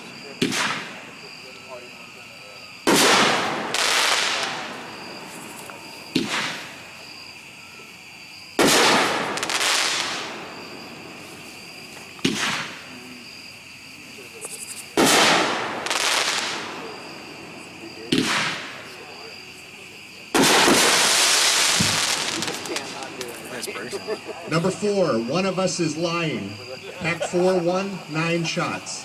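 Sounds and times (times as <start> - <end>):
firework bangs with crackling hiss: 0.0 - 1.5, 2.8 - 7.3, 8.6 - 13.4, 14.2 - 24.0
crickets chirping: 0.0 - 29.0
small firework pop: 5.6 - 6.7, 12.1 - 12.8, 18.1 - 18.8, 21.8 - 23.4.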